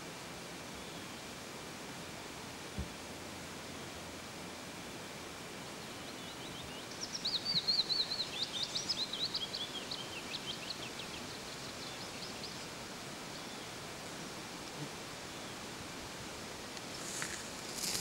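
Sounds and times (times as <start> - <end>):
background hiss: 0.0 - 18.0
songbird singing chirps and trills: 0.6 - 18.0.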